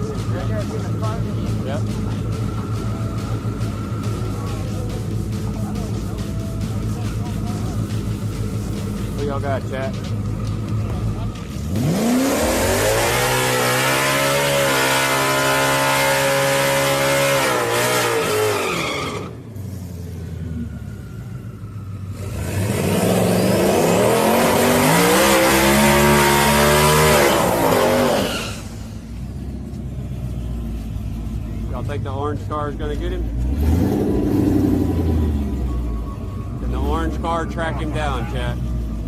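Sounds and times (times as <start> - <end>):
car engine revving: 0.0 - 39.0
tyre squeal: 17.4 - 19.7, 24.4 - 29.1.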